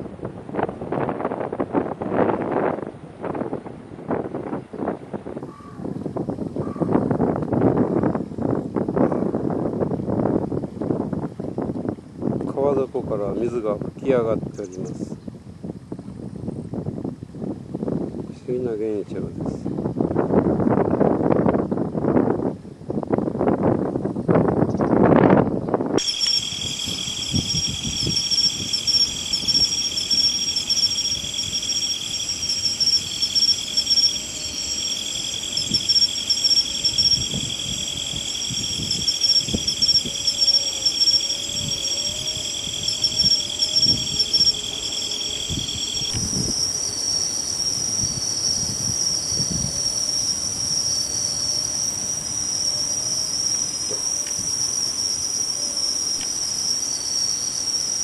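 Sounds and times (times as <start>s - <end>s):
insects trilling: 26.0s - 58.0s.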